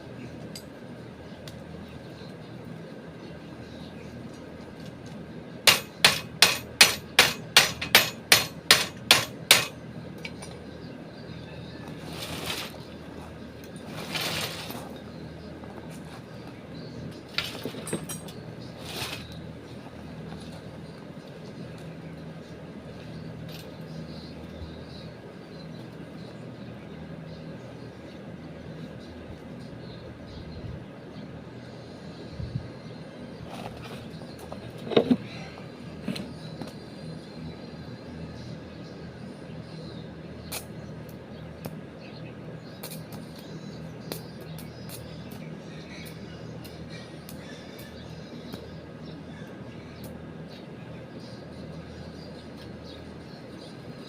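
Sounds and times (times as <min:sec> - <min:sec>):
low mechanical hum: 0:00.0 - 0:54.0
hammer striking: 0:05.7 - 0:09.8.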